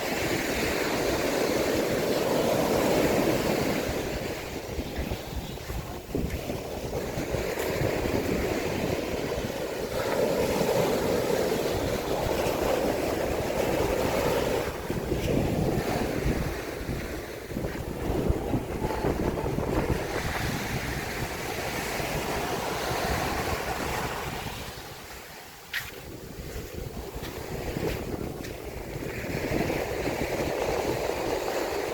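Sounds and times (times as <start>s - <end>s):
waves washing onto sand: 0.0s - 31.9s
wind buffeting microphone: 0.0s - 31.9s.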